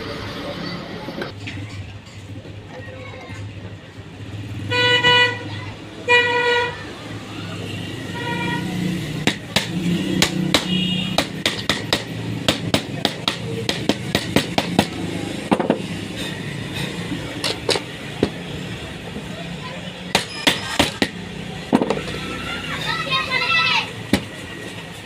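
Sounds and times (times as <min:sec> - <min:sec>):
street traffic: 0:00.0 - 0:25.0
vehicle horn beeping: 0:04.7 - 0:05.5, 0:06.1 - 0:06.8, 0:08.1 - 0:08.8, 0:10.6 - 0:11.2
sharp taps and knocks: 0:09.2 - 0:15.9, 0:17.3 - 0:18.5, 0:20.0 - 0:22.2, 0:24.1 - 0:24.4.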